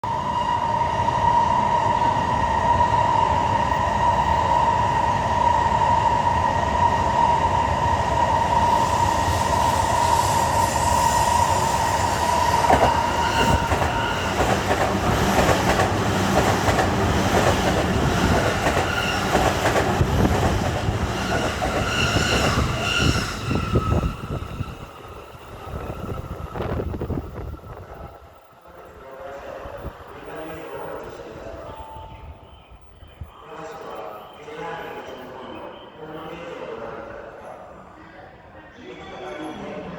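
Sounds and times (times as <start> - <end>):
train whine: 0.0 - 39.9
train wheels clattering over rails: 12.6 - 23.1.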